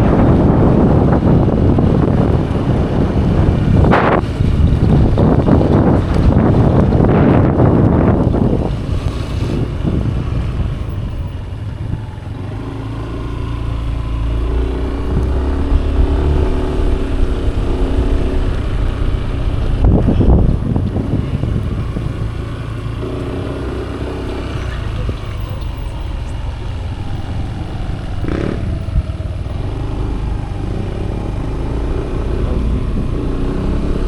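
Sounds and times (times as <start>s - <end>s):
motorcycle engine running: 0.0s - 34.0s
wind buffeting microphone: 0.0s - 34.0s.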